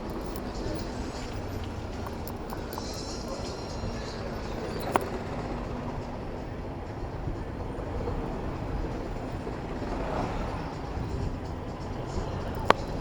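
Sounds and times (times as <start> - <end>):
city traffic noise: 0.0 - 13.0
wind rumble on microphone: 0.0 - 13.0.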